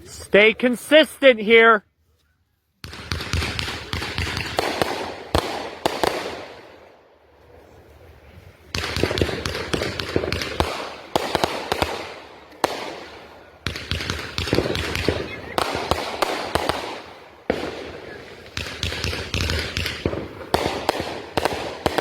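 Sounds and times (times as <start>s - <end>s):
fireworks bangs and crackling: 2.8s - 22.0s.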